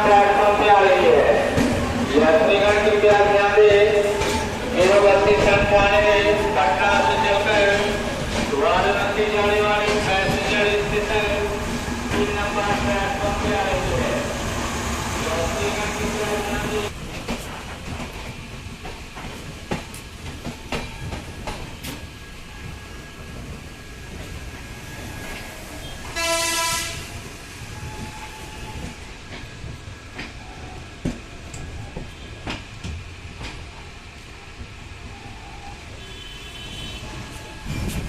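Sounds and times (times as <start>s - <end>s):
train rumbling along track: 0.0s - 38.0s
wheels clacking over rail joints: 1.5s - 14.0s
train horn blast: 25.8s - 27.2s, 36.0s - 37.1s.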